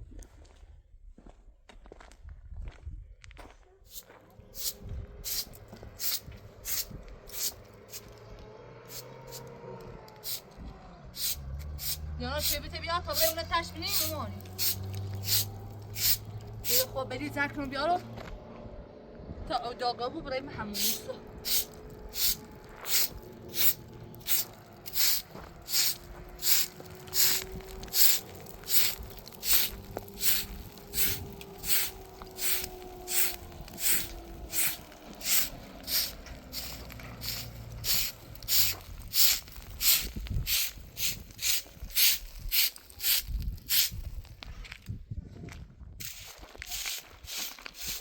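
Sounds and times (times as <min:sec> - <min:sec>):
broom swishing strokes: 0:03.9 - 0:08.2, 0:11.2 - 0:17.0, 0:20.8 - 0:44.0, 0:46.0 - 0:48.0.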